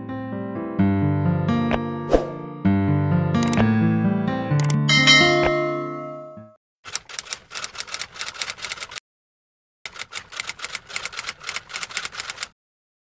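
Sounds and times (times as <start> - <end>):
background music: 0.0 - 6.6.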